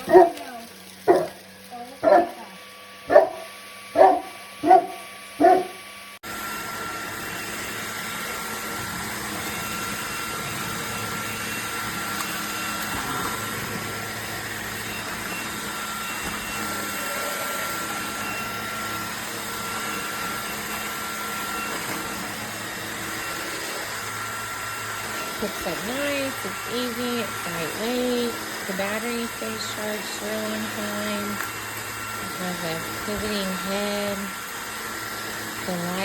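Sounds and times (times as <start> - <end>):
dog barking: 0.0 - 0.4, 1.1 - 1.4, 2.0 - 2.4, 3.1 - 5.8
cordless vacuum motor whine: 0.0 - 36.0.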